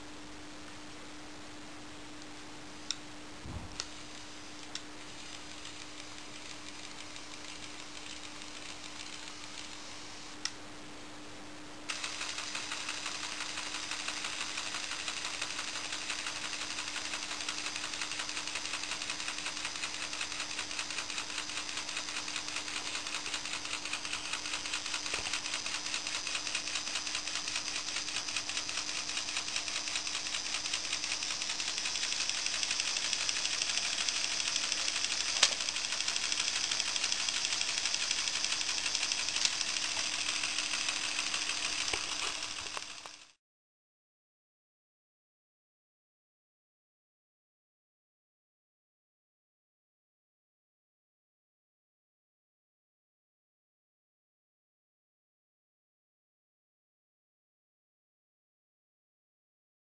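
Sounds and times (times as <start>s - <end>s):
electric motor running gears: 5.2s - 10.0s, 11.9s - 43.4s.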